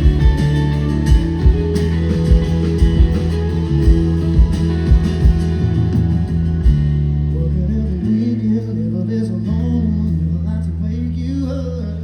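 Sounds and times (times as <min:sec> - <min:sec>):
low drum thumps: 0:00.0 - 0:07.2
live rock band playing: 0:00.0 - 0:07.9
bass line: 0:00.0 - 0:12.0
electric guitar: 0:00.0 - 0:12.0.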